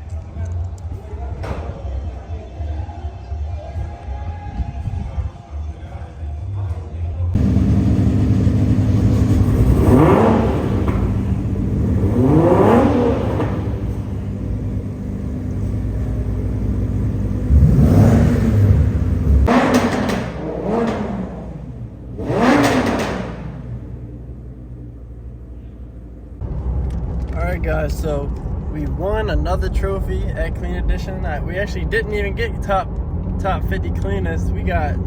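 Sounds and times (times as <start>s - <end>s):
car engine revving: 7.4s - 35.0s.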